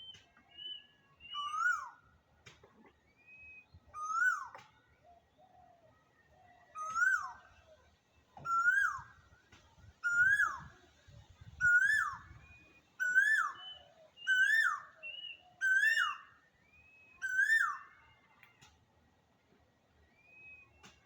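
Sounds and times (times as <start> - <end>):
bird whistled call: 0.0 - 2.0, 3.1 - 4.6, 6.7 - 7.6, 8.4 - 9.2, 10.0 - 10.7, 11.6 - 18.1, 20.0 - 21.0.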